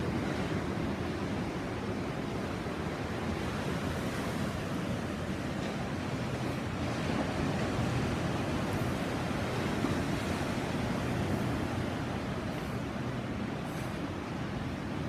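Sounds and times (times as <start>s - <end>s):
sea waves washing on beach: 0.0s - 15.0s.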